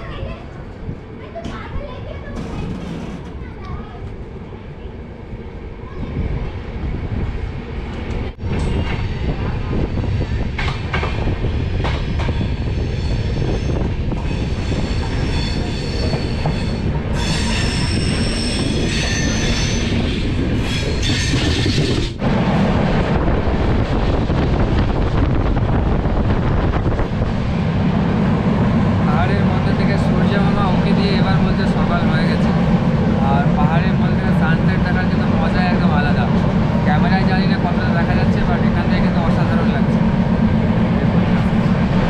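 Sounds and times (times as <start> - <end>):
train rumble: 0.0 - 42.0
steel wheels squealing on track: 12.3 - 22.2.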